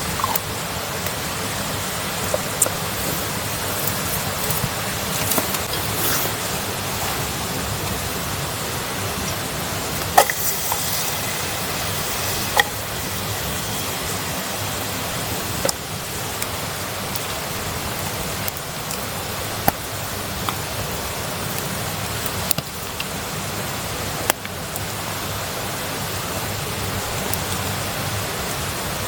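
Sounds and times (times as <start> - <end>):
wood popping in fire: 0.0 - 8.0, 9.2 - 23.3, 24.2 - 24.9
campfire hissing: 0.0 - 29.0.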